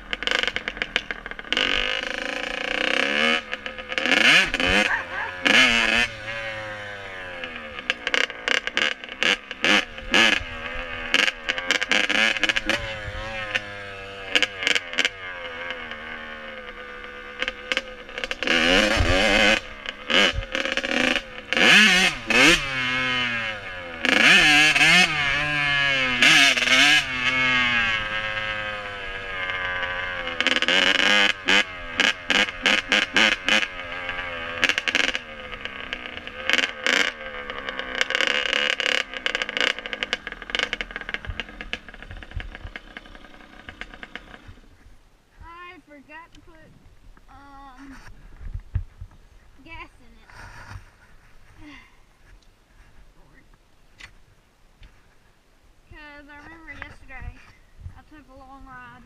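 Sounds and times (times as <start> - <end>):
dirt bike engine revving: 0.0 - 46.6.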